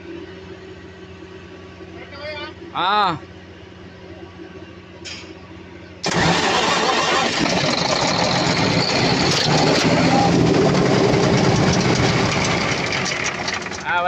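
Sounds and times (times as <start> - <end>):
diesel engine running: 0.0 - 14.0
diesel engine cranking: 6.0 - 14.0.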